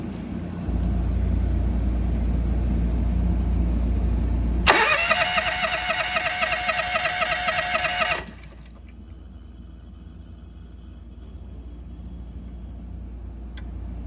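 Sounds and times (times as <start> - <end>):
engine running steadily: 0.0 - 14.0
engine cranked by starter: 4.6 - 8.9.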